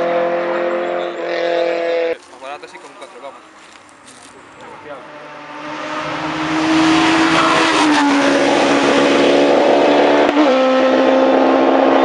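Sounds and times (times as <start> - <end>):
race car engine at full throttle: 0.0 - 2.2, 4.4 - 12.0.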